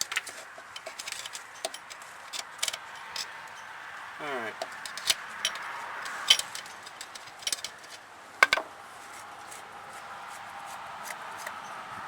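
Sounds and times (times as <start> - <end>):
metal parts and tools clinking: 0.0 - 3.7, 4.5 - 8.7.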